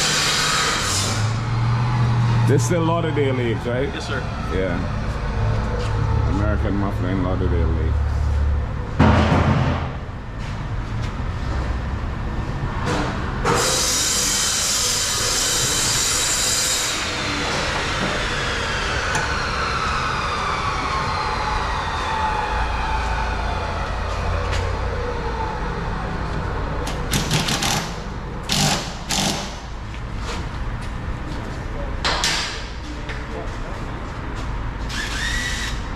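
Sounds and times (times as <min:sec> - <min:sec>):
angle grinder cutting: 0:34.9 - 0:35.9.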